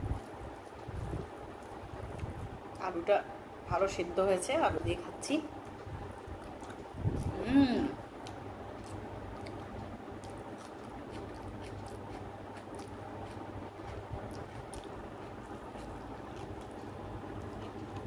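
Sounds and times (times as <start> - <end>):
steady low hum: 0.0 - 18.0
wet chewing sounds: 0.1 - 2.8, 5.6 - 7.4, 8.0 - 18.0.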